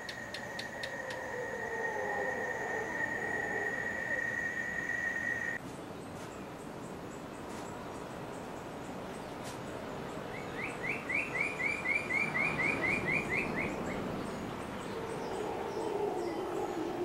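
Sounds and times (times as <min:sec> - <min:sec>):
distant howler monkeys roaring: 0:00.2 - 0:05.6, 0:14.8 - 0:17.0
bird singing repeated notes: 0:10.2 - 0:17.0.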